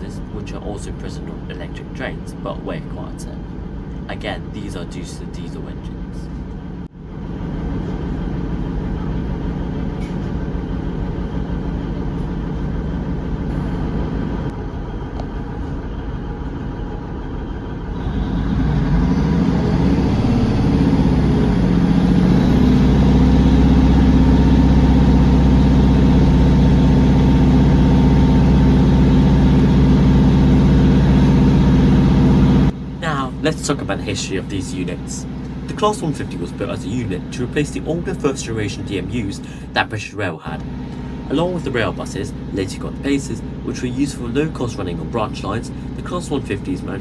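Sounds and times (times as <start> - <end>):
diesel train engines idling: 0.0 - 47.0
train engine drone pulling away: 0.0 - 47.0.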